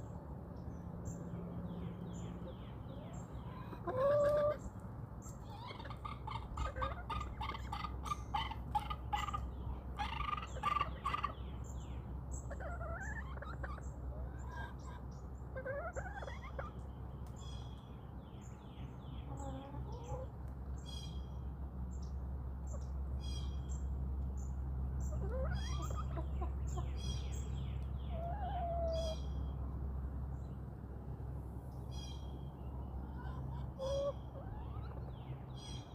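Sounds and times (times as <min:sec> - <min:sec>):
small birds chirping: 0:00.0 - 0:30.7, 0:31.7 - 0:35.9
chickens clucking: 0:02.3 - 0:11.6, 0:12.4 - 0:17.8, 0:19.1 - 0:20.6, 0:25.0 - 0:29.4, 0:33.0 - 0:35.9.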